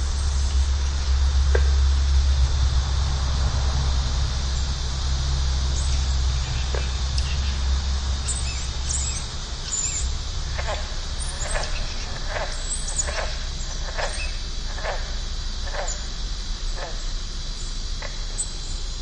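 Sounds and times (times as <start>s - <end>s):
low rumble: 0.0s - 12.4s.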